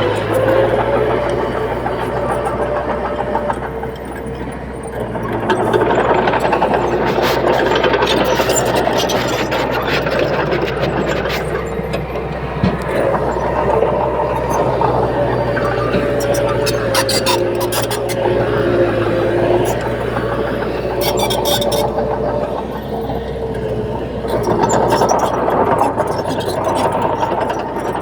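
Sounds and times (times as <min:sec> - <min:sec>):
diesel machinery engine drone: 0:00.0 - 0:28.0.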